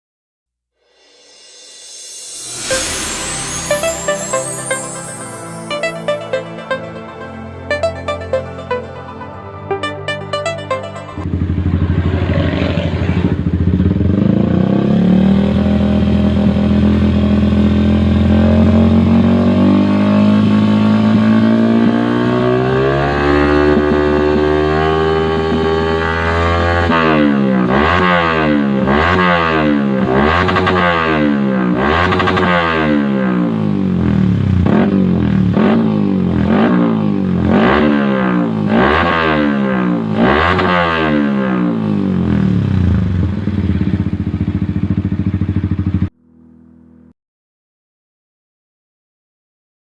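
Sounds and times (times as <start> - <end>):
motorcycle engine revving: 11.2 - 47.1.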